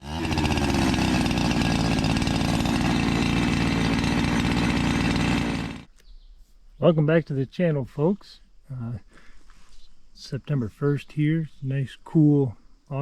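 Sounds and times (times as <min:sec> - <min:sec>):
chainsaw running at high revs: 0:00.0 - 0:05.9.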